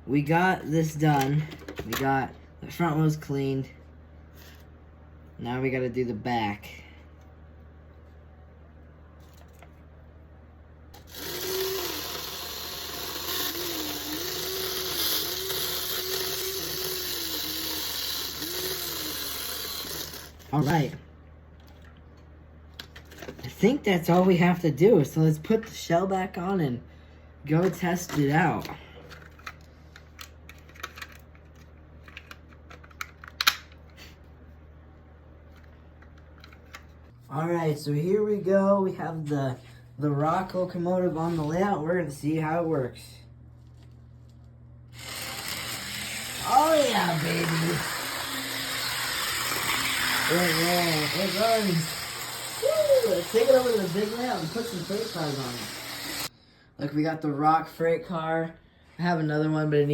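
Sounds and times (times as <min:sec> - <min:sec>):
model locomotive motor whining: 0:11.0 - 0:20.4, 0:44.9 - 0:56.3.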